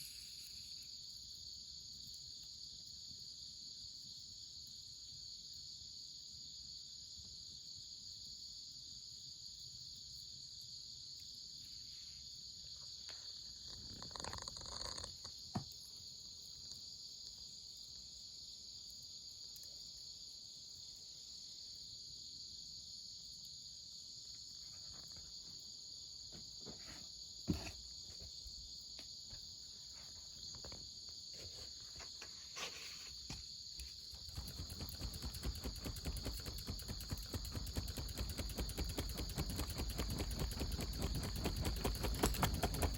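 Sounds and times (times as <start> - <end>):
high-pitched insect chorus: 0.0 - 42.9
knocks and crackles: 13.6 - 15.8, 32.0 - 42.9.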